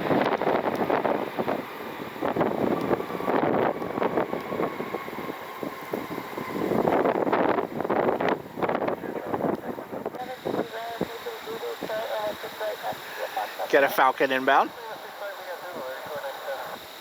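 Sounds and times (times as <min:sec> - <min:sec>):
faint steady whine: 0:00.0 - 0:17.0
gusty wind buffeting microphone: 0:00.0 - 0:17.0.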